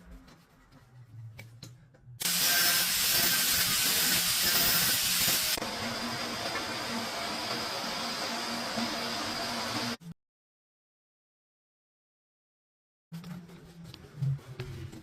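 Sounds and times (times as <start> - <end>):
water spraying under pressure: 2.2 - 10.0.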